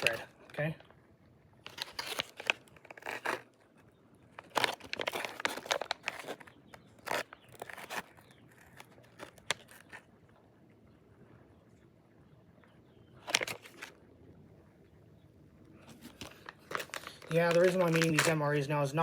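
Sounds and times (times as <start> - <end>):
plastic pouch tearing and crinkling: 0.0 - 0.4, 1.6 - 10.1, 13.2 - 14.0, 15.8 - 18.4.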